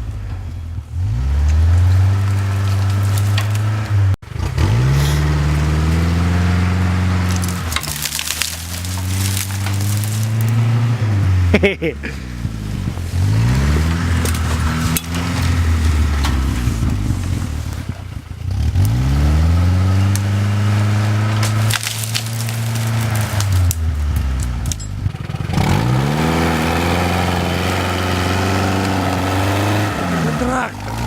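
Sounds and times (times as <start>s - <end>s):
petrol engine revving: 0.0s - 31.0s
sharp cracks and crunches: 1.4s - 4.0s, 7.1s - 10.7s, 13.0s - 19.1s, 21.1s - 27.0s.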